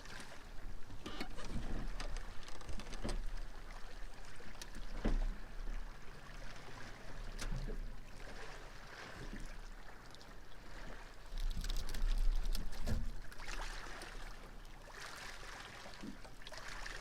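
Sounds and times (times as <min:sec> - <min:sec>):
water lapping against boat hull: 0:00.0 - 0:17.0.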